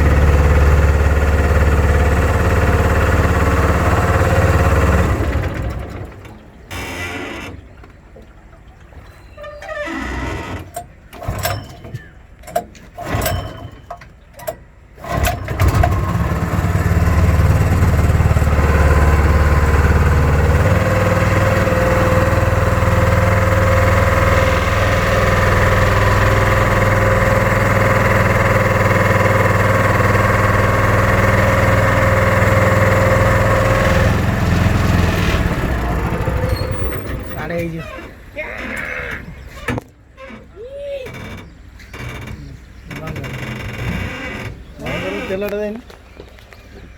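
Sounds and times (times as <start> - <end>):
small petrol engine starting: 0.0 - 7.7, 9.8 - 11.9, 13.0 - 13.9, 14.5 - 39.2.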